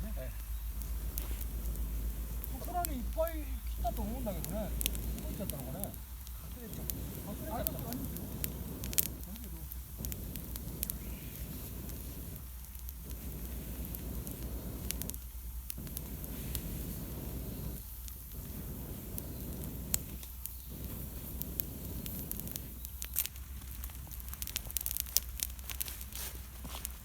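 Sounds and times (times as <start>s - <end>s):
campfire crackling: 0.0s - 27.0s
blowing through a pipe: 9.9s - 15.2s, 15.8s - 22.9s.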